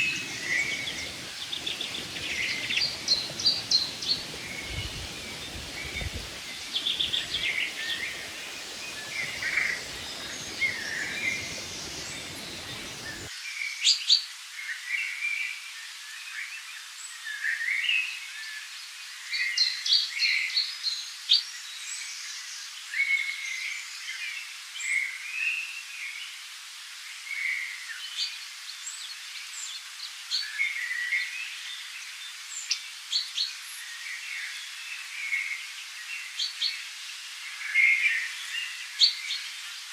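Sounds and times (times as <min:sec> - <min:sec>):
songbirds chirping: 0:00.0 - 0:13.3
steady background hiss: 0:00.0 - 0:39.9.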